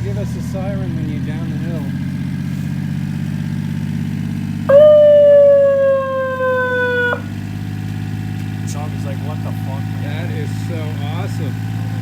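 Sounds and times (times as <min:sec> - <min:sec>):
small engine idling: 0:00.0 - 0:12.0
electronic siren tone: 0:04.7 - 0:07.3.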